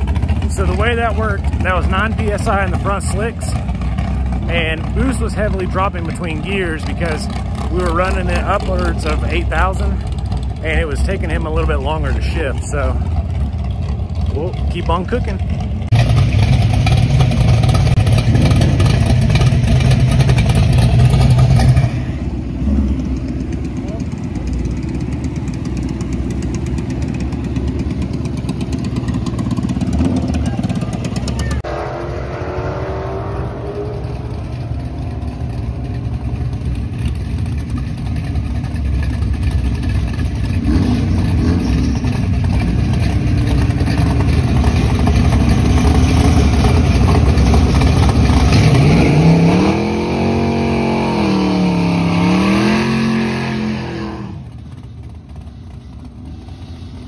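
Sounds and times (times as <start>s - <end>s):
car engines revving: 0.0s - 57.0s
four-cylinder engine revving: 0.0s - 57.0s.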